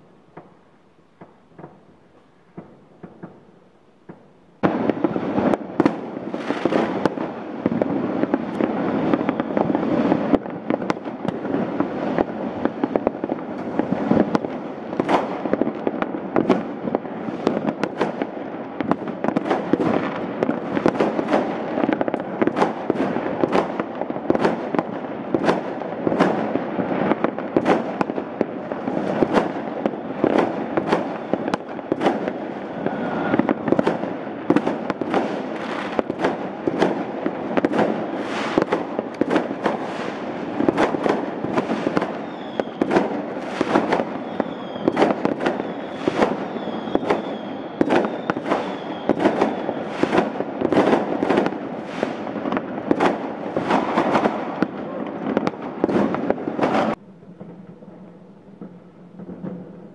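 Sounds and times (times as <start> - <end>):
distant fireworks rumble: 0.0 - 59.9
fireworks bangs: 0.0 - 59.9
faint falling firework whistle: 8.8 - 10.1, 30.8 - 36.2, 37.6 - 50.7, 53.6 - 59.9.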